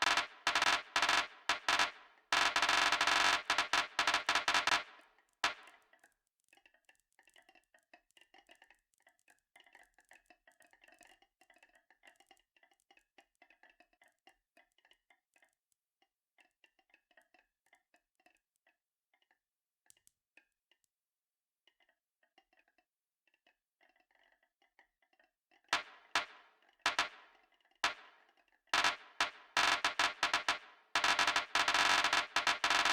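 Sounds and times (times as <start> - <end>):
marbles clattering on track: 0.0 - 5.7, 25.8 - 26.3, 26.9 - 27.2, 28.8 - 32.9.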